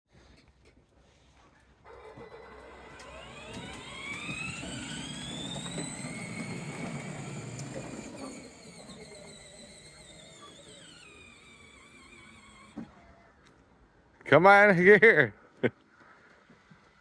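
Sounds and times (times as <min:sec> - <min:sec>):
vehicle motor whining: 0:01.8 - 0:13.2.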